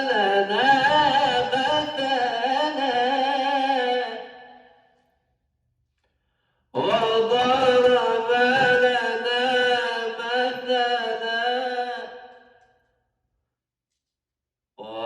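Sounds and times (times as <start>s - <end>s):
man chanting recitation: 0.0s - 4.4s, 6.8s - 12.6s.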